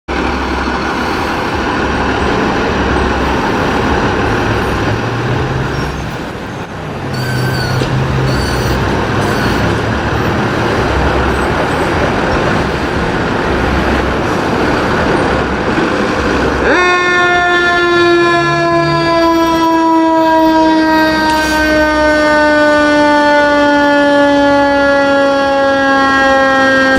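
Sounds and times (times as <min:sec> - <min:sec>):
diesel engine rumbling: 0:00.1 - 0:23.8
air horn blast: 0:03.2 - 0:15.2, 0:16.6 - 0:26.9.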